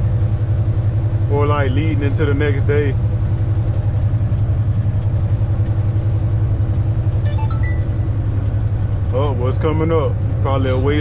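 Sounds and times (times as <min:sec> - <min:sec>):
diesel truck engine droning: 0:00.0 - 0:11.0
short high tones: 0:07.2 - 0:08.2.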